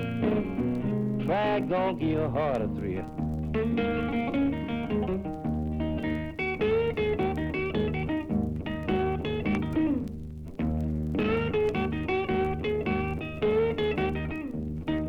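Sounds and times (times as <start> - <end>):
blues guitar single-note runs: 0.0 - 15.0.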